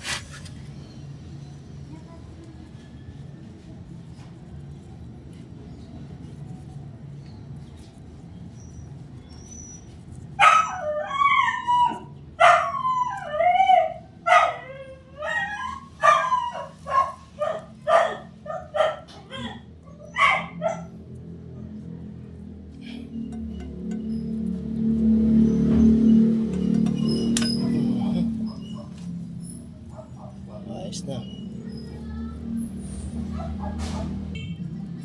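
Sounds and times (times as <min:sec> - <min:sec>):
dog barking and yelping: 0:10.4 - 0:20.9, 0:26.6 - 0:29.2, 0:29.8 - 0:30.8, 0:33.3 - 0:34.2.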